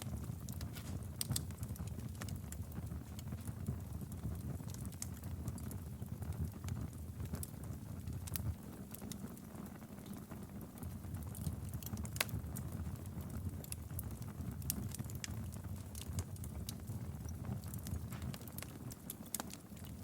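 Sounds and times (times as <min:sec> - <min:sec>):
fireplace fire crackling: 0:00.0 - 0:20.0
rumble of flames: 0:00.0 - 0:20.0.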